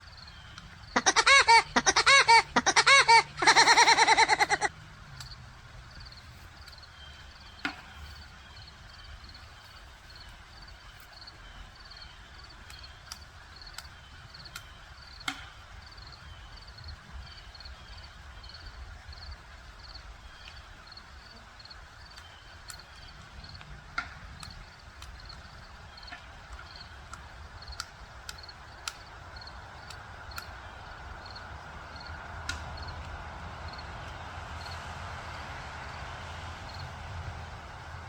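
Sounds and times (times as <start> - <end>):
woodpecker knocking on wood: 0.6 - 5.4.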